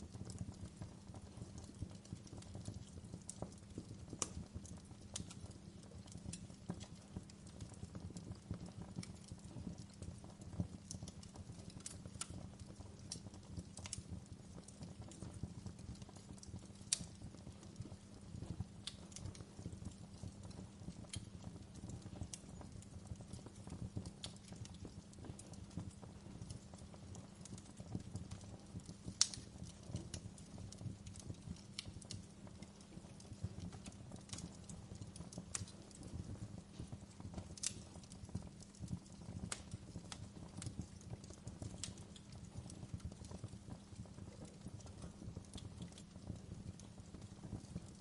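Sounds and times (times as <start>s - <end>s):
low fire rumble: 0.0s - 48.0s
wood fire crackling and popping: 0.0s - 48.0s.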